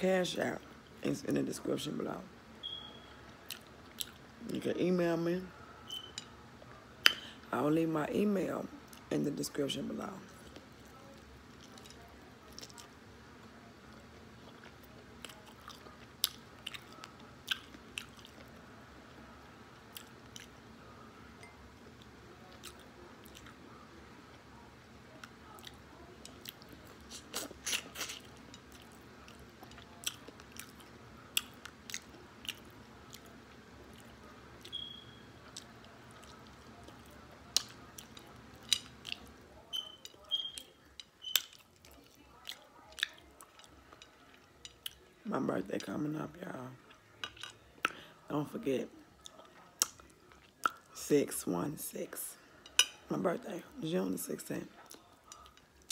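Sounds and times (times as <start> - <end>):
low steady hum: 0.0 - 55.9
person chewing and biting food: 14.4 - 18.6, 25.2 - 39.4.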